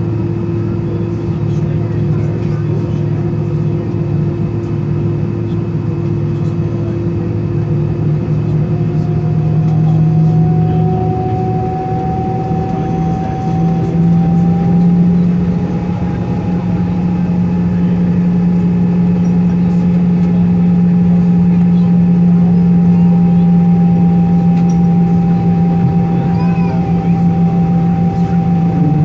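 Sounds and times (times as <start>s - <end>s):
jet engine cabin drone: 0.0s - 29.0s
rising engine whine: 7.2s - 29.0s.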